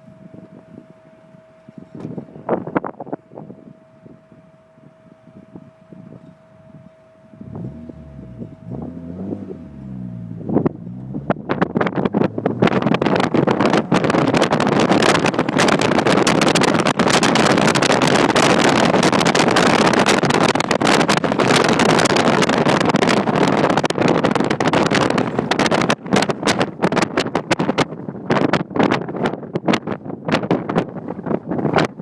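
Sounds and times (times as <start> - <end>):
wind buffeting microphone: 0.0 - 32.0
car exhaust running loud and rough: 7.2 - 30.2.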